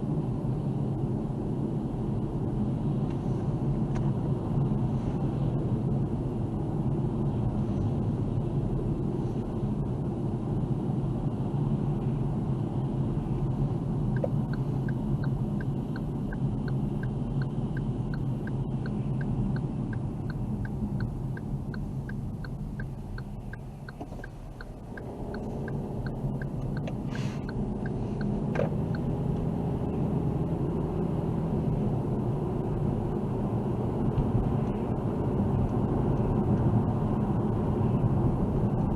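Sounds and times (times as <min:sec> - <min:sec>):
car engine and tyres rumbling: 0:00.0 - 0:38.9
turn signal ticking: 0:14.0 - 0:29.5.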